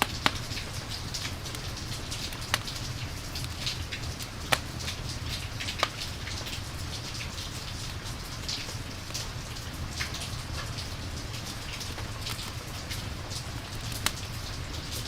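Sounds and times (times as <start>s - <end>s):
campfire crackling pops: 0.0s - 6.6s, 11.4s - 14.4s
rain hiss: 0.0s - 15.0s.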